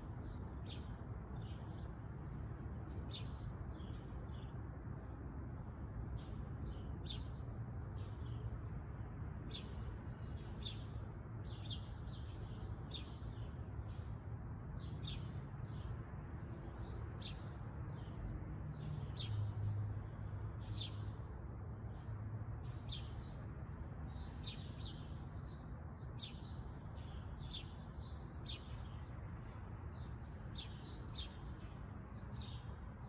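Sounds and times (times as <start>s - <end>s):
small birds chirping: 9.5s - 14.2s, 14.8s - 33.0s.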